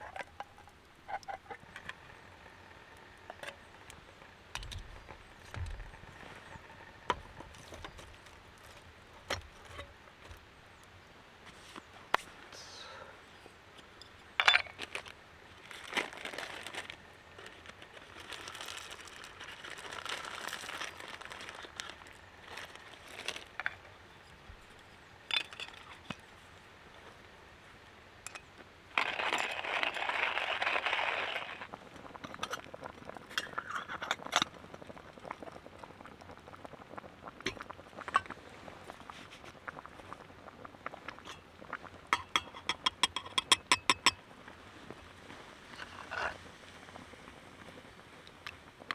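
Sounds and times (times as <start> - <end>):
camp gear clinking and knocking: 4.6 - 10.4, 13.8 - 15.2, 22.6 - 26.3, 37.4 - 38.4, 42.1 - 44.3, 45.7 - 46.4.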